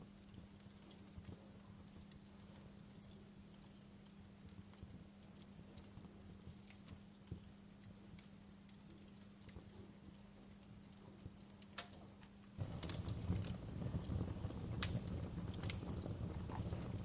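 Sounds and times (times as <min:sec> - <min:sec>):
low rushing roar of flames: 0:00.0 - 0:17.0
wood fire crackling and popping: 0:00.0 - 0:17.0.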